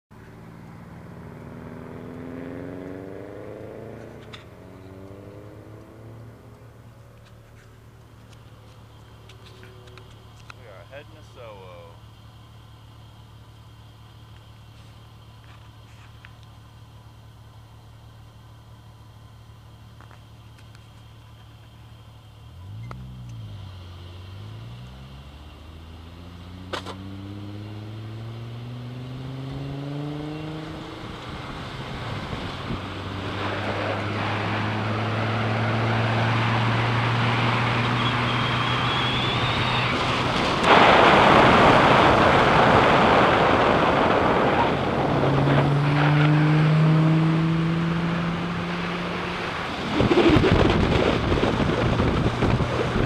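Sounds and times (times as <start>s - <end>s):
car engine accelerating: 0.1s - 53.0s
road and tyre noise: 0.1s - 53.0s
wind rush on microphone: 49.7s - 53.0s.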